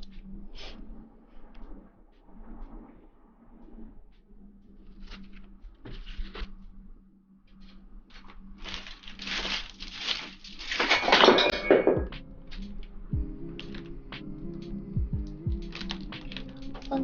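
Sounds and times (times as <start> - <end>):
scratchy rustling: 4.8 - 6.6, 7.7 - 11.0.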